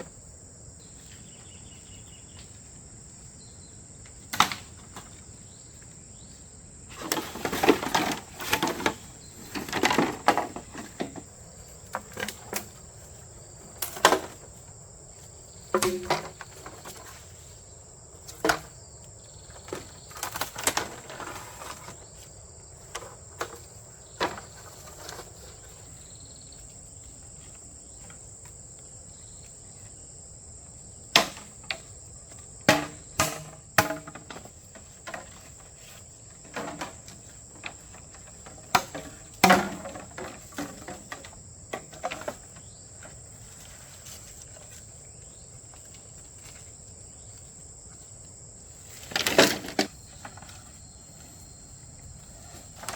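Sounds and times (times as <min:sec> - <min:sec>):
sharp knocks and clatters: 0:15.7 - 0:17.2.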